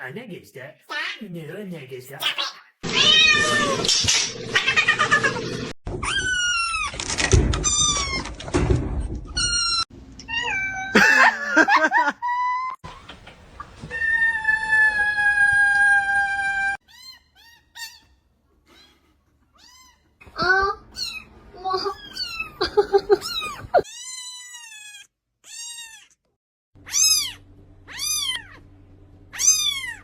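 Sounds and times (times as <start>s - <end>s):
cats meowing: 2.8s - 3.9s, 9.4s - 11.2s, 13.8s - 19.0s, 19.6s - 26.2s, 26.8s - 28.6s, 29.3s - 30.0s.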